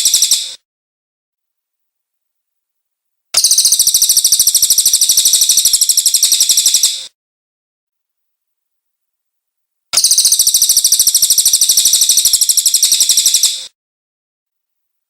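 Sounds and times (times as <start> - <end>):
bird singing rapid pulsing trill: 3.4 - 7.1, 10.0 - 13.7.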